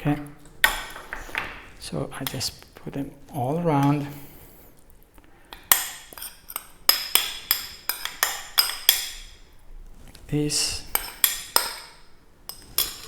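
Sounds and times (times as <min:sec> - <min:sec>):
metal spoon clinking on bowl: 0:05.5 - 0:09.4, 0:10.9 - 0:13.0.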